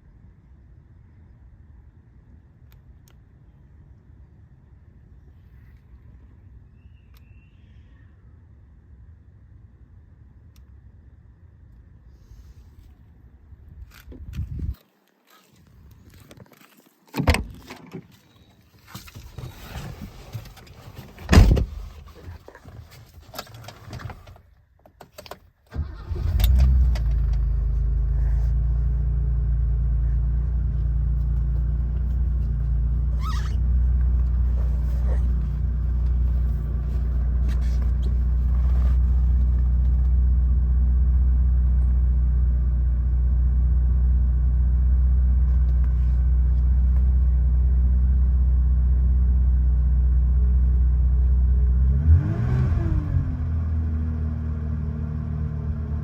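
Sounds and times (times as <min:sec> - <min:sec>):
car engine starting and idling: 0:25.7 - 0:56.0.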